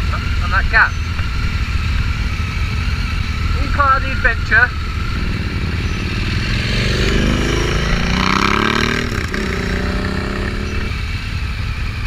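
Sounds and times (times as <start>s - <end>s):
constant low rumble: 0.0s - 12.0s
motorcycle engine accelerating: 4.4s - 12.0s.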